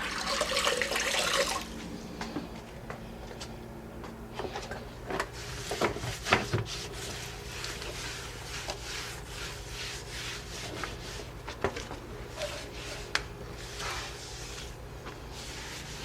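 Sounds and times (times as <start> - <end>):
steady low hum: 1.3 - 16.0
cloth rubbing on floor: 5.2 - 16.0.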